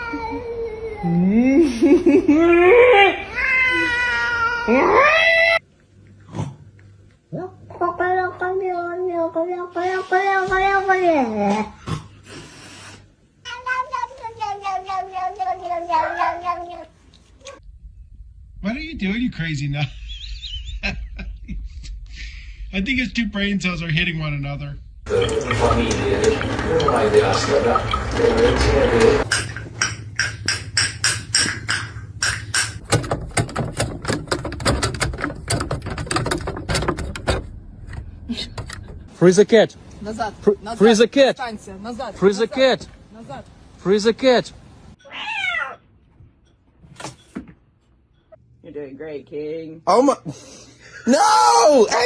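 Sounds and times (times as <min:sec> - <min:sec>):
cat yowling: 0:15.9 - 0:16.7, 0:45.0 - 0:45.8
rapid irregular tapping: 0:29.2 - 0:37.2.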